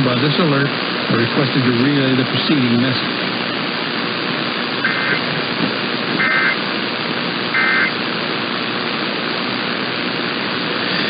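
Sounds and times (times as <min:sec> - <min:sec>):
radio static hiss: 0:00.0 - 0:11.0
two-tone digital chirps: 0:06.2 - 0:06.6, 0:07.6 - 0:07.9.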